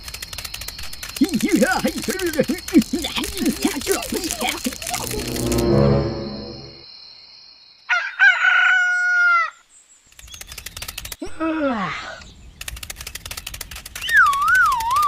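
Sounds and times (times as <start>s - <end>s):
rapid clicks: 0.0s - 5.6s, 10.2s - 11.2s, 12.6s - 15.0s
falling pitched glide: 5.0s - 6.8s
rooster crowing: 7.9s - 9.6s.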